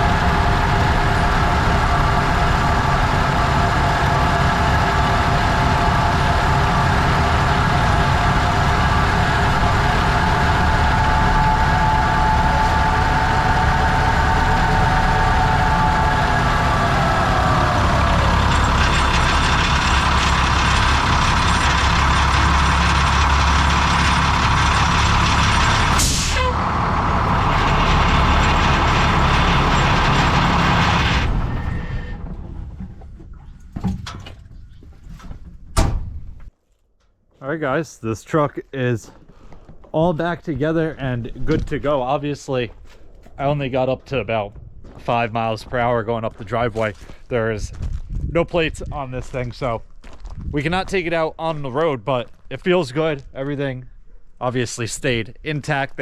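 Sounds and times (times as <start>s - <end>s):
diesel truck engine running: 0.0s - 35.2s.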